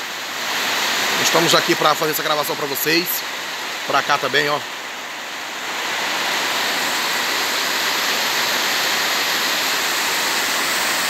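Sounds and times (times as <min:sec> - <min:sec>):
heavy rain hissing: 0:00.0 - 0:11.0.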